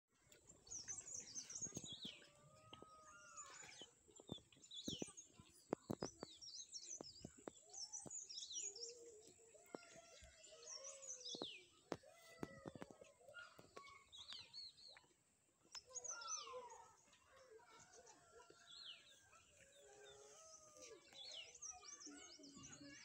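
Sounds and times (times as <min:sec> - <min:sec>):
small birds chirping and twittering: 0:00.2 - 0:23.0.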